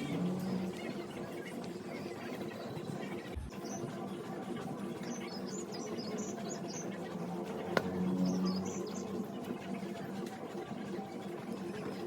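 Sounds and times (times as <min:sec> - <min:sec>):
steady low hum: 0:00.0 - 0:02.5
small birds chirping: 0:00.0 - 0:12.0.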